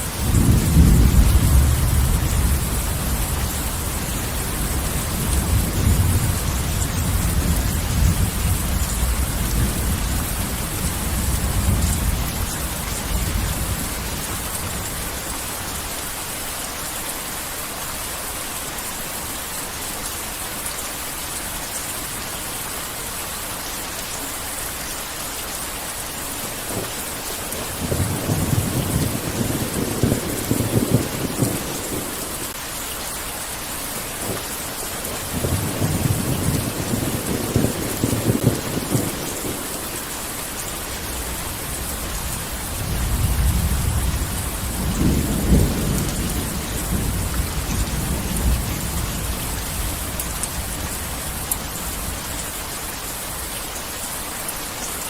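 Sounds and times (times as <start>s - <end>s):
thunder rumbling: 0.0s - 15.2s, 27.6s - 32.5s, 35.2s - 39.9s, 40.9s - 52.4s
heavy rain: 0.0s - 55.0s.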